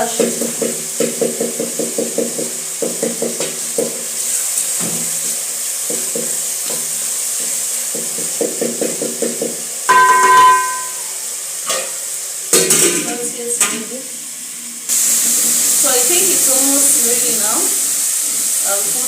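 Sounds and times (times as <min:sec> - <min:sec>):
frying sizzle: 0:00.0 - 0:19.0
wooden stick knocking metal pot: 0:09.9 - 0:11.1.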